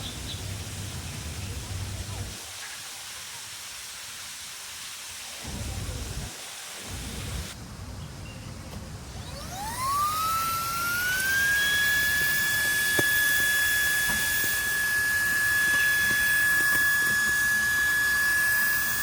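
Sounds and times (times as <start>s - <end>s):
vacuum motor whine: 9.1s - 19.0s.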